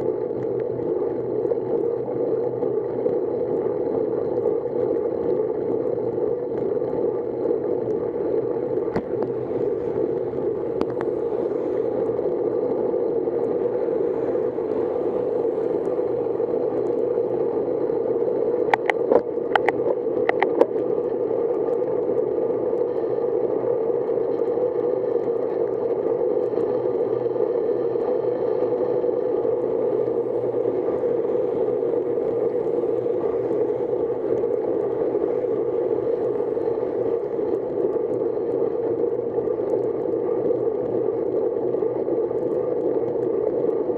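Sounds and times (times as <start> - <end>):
sharp clicks: 18.7 - 20.7.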